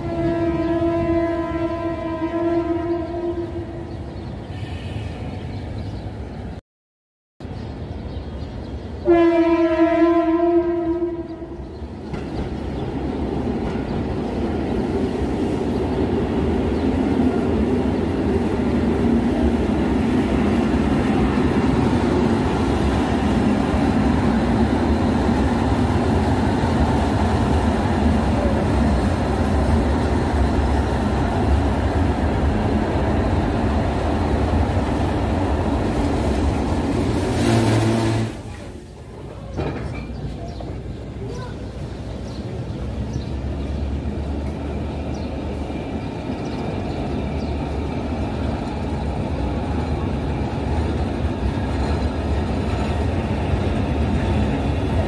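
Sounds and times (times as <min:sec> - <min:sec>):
train horn blast: 0:00.0 - 0:03.9, 0:09.0 - 0:11.6, 0:37.3 - 0:38.5
train wheels rumbling on rails: 0:11.2 - 0:55.0.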